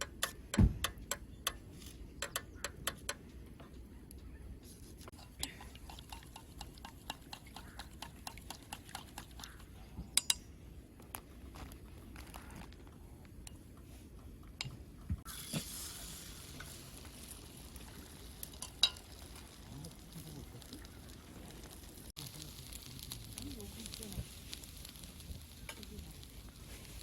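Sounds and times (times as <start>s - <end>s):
steady hiss: 15.2s - 27.0s
utensil tapping a pan: 18.6s - 19.2s.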